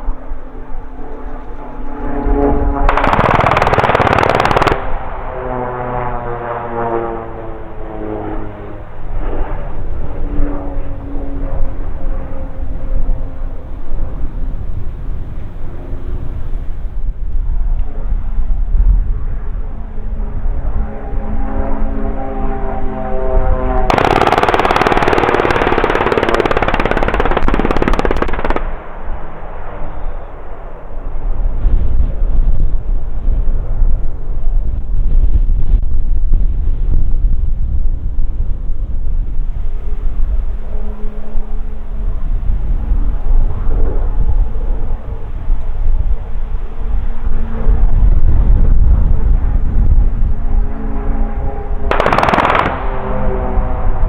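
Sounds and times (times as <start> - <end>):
propeller aircraft droning overhead: 0.0 - 54.0
machine-gun fire: 2.9 - 5.1, 23.9 - 29.2, 51.9 - 53.5.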